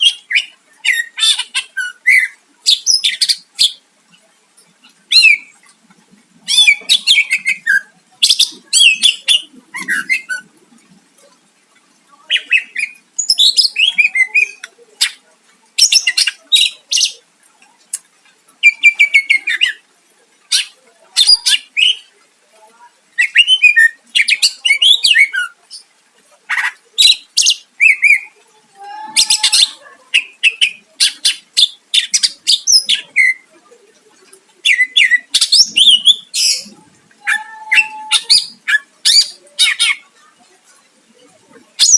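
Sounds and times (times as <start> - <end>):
bird chattering song: 6.5 - 10.5, 12.2 - 15.2, 29.2 - 33.5, 34.6 - 36.8.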